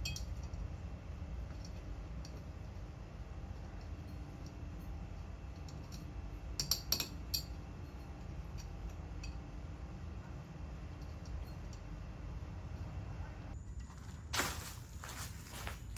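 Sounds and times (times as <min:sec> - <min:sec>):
light metallic clinks of tools: 0:05.6 - 0:09.4.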